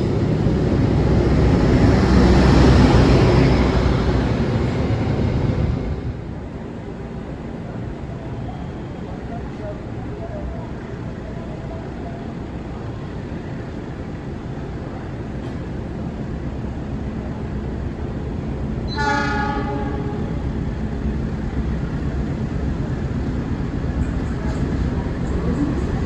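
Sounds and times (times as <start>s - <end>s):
train rumbling past: 0.0s - 26.0s
train horn blast: 18.9s - 20.4s.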